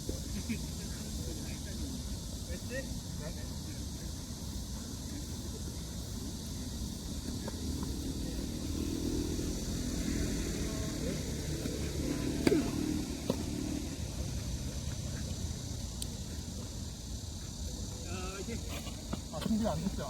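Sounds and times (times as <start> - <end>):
vehicle passing: 7.5 - 15.8
tennis ball hit by racket: 12.3 - 13.4.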